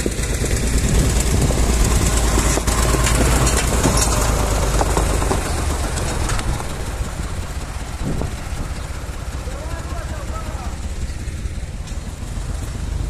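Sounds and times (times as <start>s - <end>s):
knocks and rattles: 0.0s - 12.8s
tractor diesel engine rumble: 0.0s - 13.0s.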